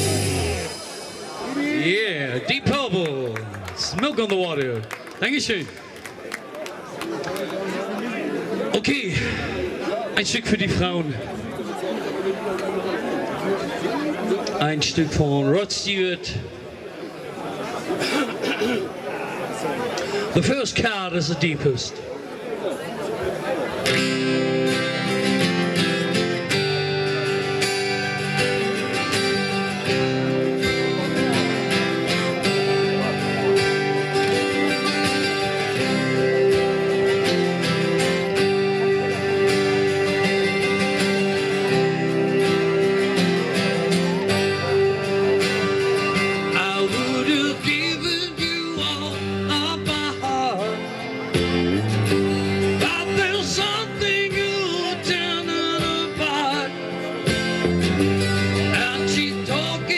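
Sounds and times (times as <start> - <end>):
guitar with accompaniment: 0.0 - 5.8, 23.5 - 59.9
person singing: 46.0 - 57.2, 58.6 - 59.9.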